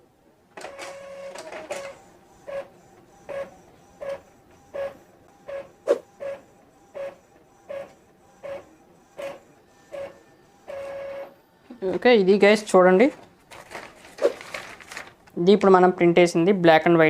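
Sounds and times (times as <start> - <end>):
printer mechanical whirr: 0.4 - 12.1.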